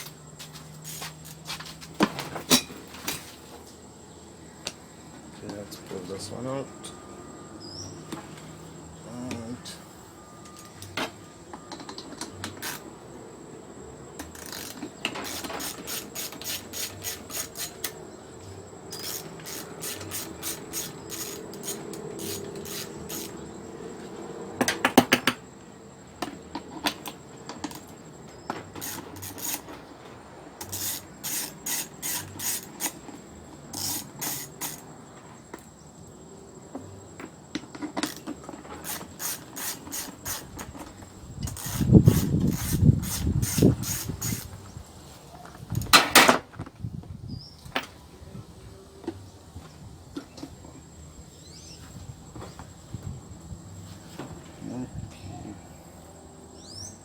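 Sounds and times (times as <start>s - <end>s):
ratchet wrench clicking: 0.8s - 1.6s, 12.5s - 12.8s, 14.2s - 18.0s, 18.9s - 23.4s, 28.8s - 29.7s, 30.6s - 33.1s, 33.7s - 34.9s, 38.0s - 40.7s, 41.4s - 44.6s.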